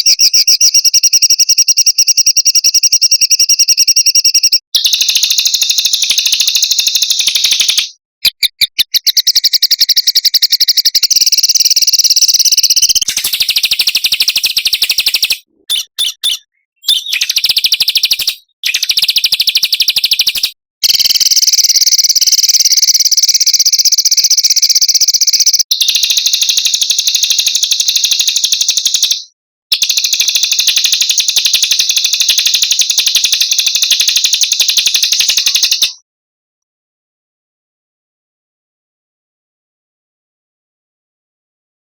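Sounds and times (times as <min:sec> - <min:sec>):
songbirds trilling: 0:08.8 - 0:20.3.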